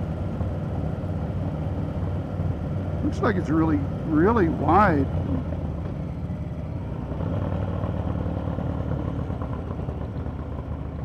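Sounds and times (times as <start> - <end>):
motorcycle engine running: 4.1 - 11.0.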